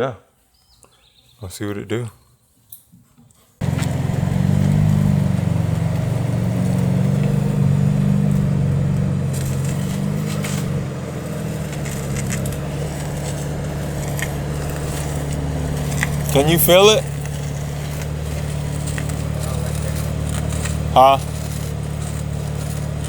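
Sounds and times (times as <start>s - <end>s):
car engine driving: 3.6s - 23.0s
road noise: 3.6s - 23.0s.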